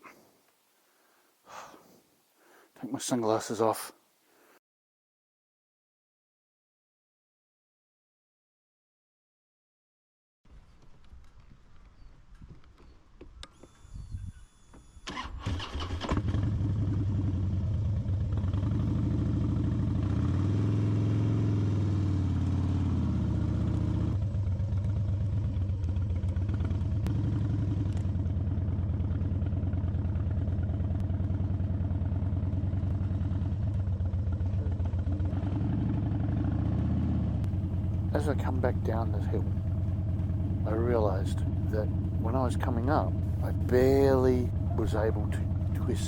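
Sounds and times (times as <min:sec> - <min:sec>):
motorcycle engine starting and revving: 0:14.8 - 0:46.0.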